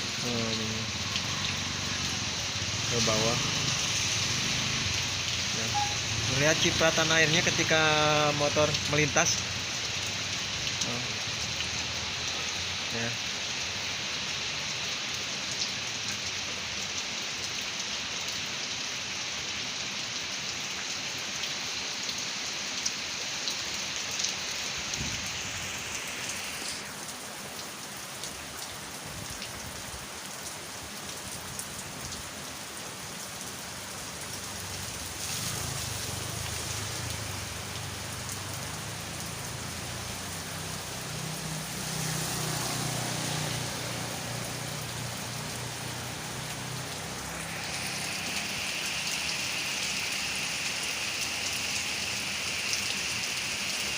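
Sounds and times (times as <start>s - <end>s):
heavy rain on road: 0.0s - 53.9s
passing vehicle engine hum: 0.8s - 7.6s, 35.0s - 52.3s.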